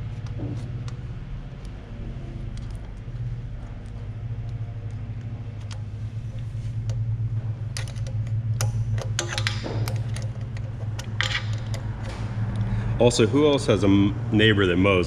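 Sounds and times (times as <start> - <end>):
hand tools and bolts clinking: 7.8 - 12.4.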